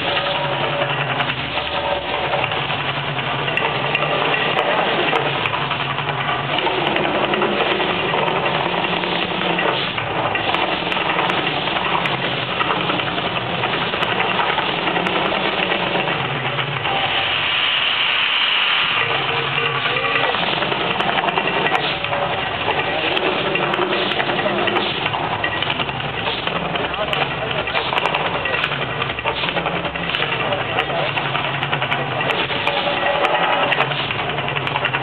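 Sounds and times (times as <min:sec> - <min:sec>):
loud hissing rush: 0:16.7 - 0:25.1
bright hiss: 0:16.9 - 0:19.8.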